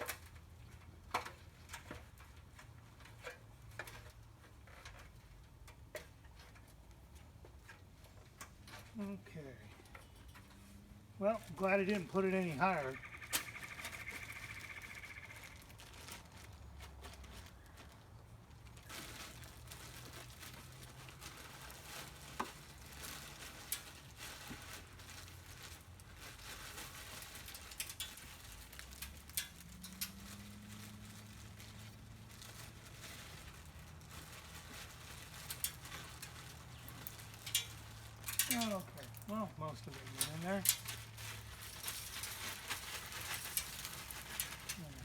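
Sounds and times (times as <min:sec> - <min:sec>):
birdseed pattering: 0:09.7 - 0:45.0
bag crinkling: 0:10.4 - 0:45.0.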